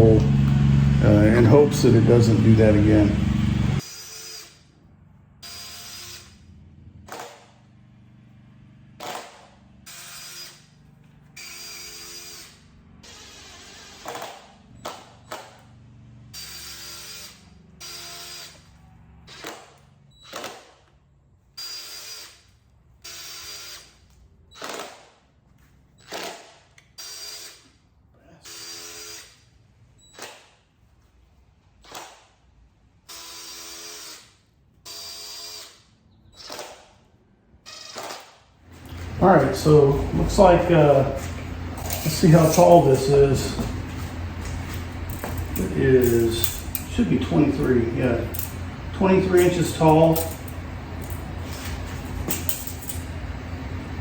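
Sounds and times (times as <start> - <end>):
power drill boring into wood: 2.8 - 4.6, 5.4 - 6.4, 9.9 - 10.6, 11.4 - 14.5, 16.4 - 18.6, 21.6 - 22.4, 23.0 - 23.9, 26.0 - 27.7, 28.4 - 29.4, 33.1 - 36.9, 37.7 - 38.4.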